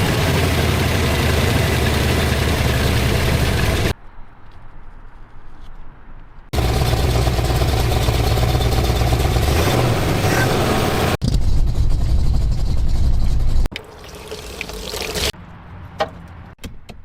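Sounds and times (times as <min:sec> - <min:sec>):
car engine running loud: 0:00.0 - 0:03.9, 0:06.6 - 0:12.9.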